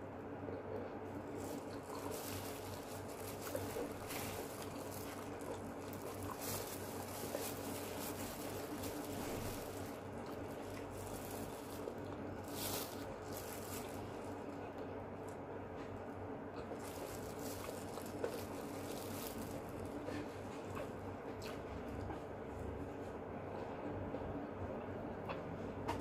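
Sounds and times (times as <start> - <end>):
steady low hum: 0.0 - 26.0
plastic glove crinkling: 1.0 - 21.0
wet chewing: 1.2 - 15.4, 16.5 - 22.2.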